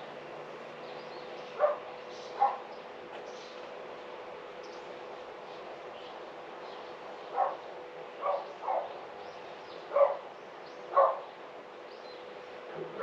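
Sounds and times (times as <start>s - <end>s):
dog barking: 1.6s - 2.7s, 7.3s - 7.6s, 8.2s - 9.0s, 9.9s - 10.2s, 10.9s - 11.3s.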